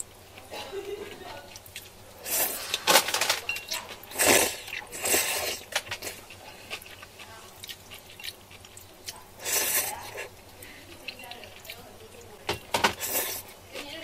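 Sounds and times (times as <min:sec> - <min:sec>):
person eating noisily: 0:00.0 - 0:14.0
chewing with small clicks: 0:01.2 - 0:02.0, 0:04.6 - 0:12.4.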